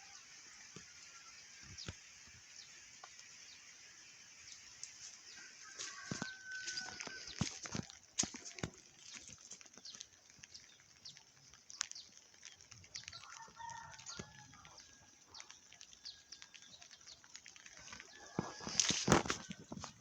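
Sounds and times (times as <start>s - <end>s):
raindrops ticking over hiss: 0.0s - 20.0s
faint farm animal call: 5.3s - 7.6s.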